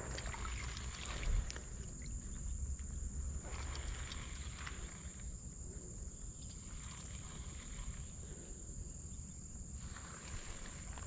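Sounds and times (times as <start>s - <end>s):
water splashing in a creek: 0.0s - 2.4s, 3.1s - 5.6s, 6.2s - 8.3s, 9.7s - 11.0s
crickets droning: 0.0s - 11.0s.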